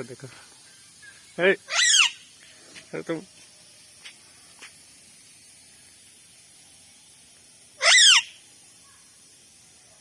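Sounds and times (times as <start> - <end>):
parrot screeching: 1.7 - 2.2, 7.8 - 8.4.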